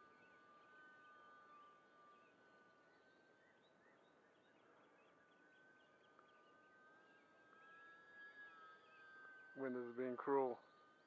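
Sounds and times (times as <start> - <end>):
faint birdsong chirps: 0.0 - 11.0
faint steady high whine: 0.0 - 11.0.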